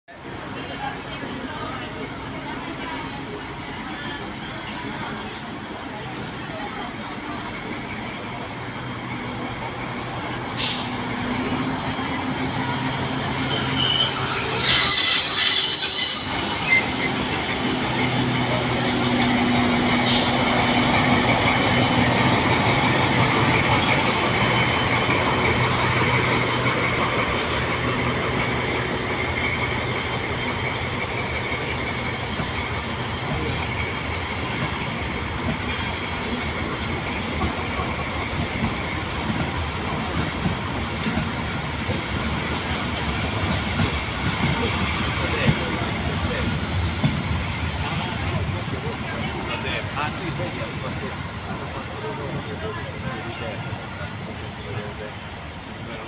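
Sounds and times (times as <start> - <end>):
train coaches rumbling: 0.1 - 56.0
locomotive hum: 0.2 - 56.0
shrill high-pitched squeal: 13.5 - 17.2.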